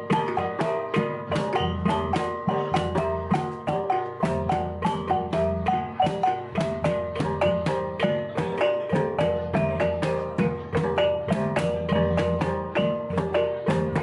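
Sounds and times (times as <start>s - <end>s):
marimba-like mallet melody: 0.0s - 14.0s.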